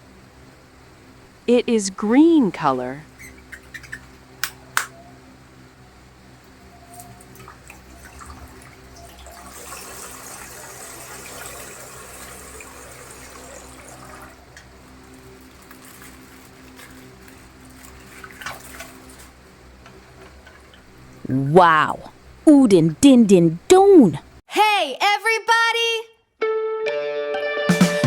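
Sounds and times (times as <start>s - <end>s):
sharp click: 4.4s - 5.0s
water pouring from plastic bag: 9.4s - 19.4s.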